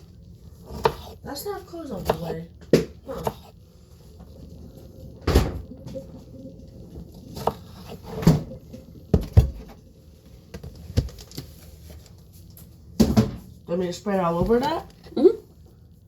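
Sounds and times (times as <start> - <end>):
kitchen things knocking and thudding: 8.1 - 9.8, 13.0 - 13.5, 14.3 - 14.9.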